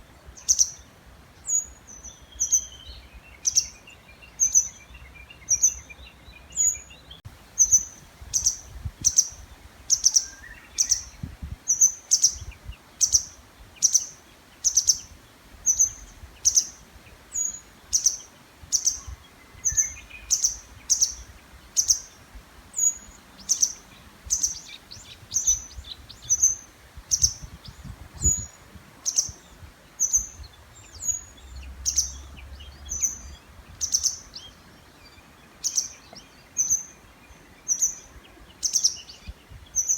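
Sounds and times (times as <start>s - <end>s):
faint lower bird song: 0.0s - 39.9s
songbird repeating high call: 1.5s - 22.2s, 22.8s - 34.6s.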